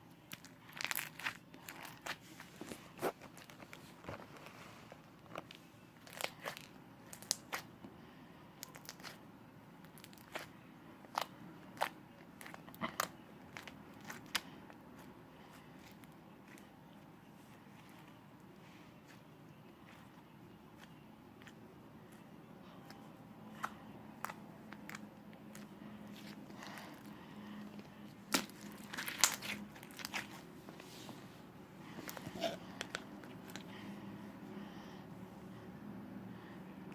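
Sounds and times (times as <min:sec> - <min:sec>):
slime crackling and popping: 0:00.3 - 0:02.2, 0:06.0 - 0:07.7, 0:28.2 - 0:30.4.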